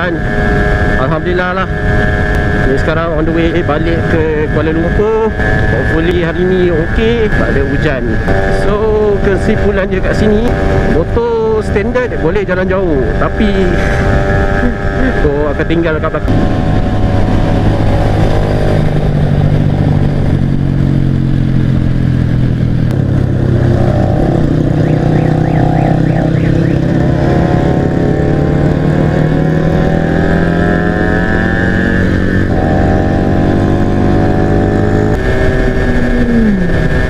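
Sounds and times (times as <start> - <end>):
motorcycle engine cruising: 0.0 - 37.0
other motorcycle engines: 0.0 - 37.0
motorcycle passing by: 11.8 - 37.0.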